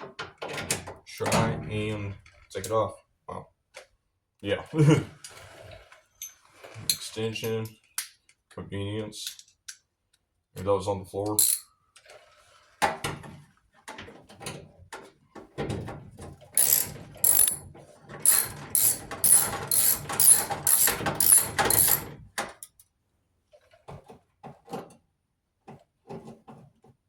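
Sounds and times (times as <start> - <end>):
ratchet wrench clicking: 11.4 - 11.6, 16.6 - 17.6, 18.2 - 22.1
handling of tool and metal parts: 16.6 - 22.8.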